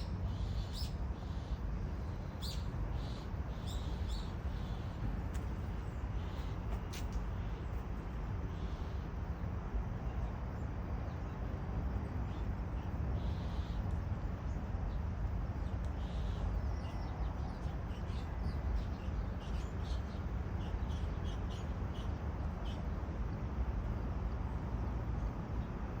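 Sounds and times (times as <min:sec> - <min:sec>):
birds chirping: 0:00.0 - 0:07.7.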